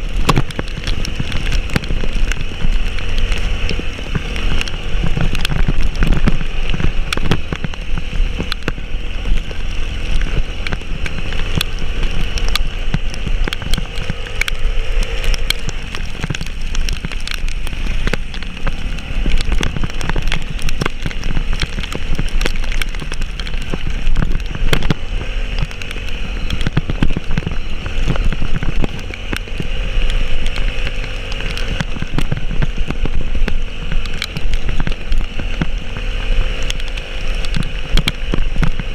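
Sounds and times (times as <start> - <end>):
heavy rain hitting vehicle: 0.0 - 38.9
vehicle engine running: 0.0 - 38.9.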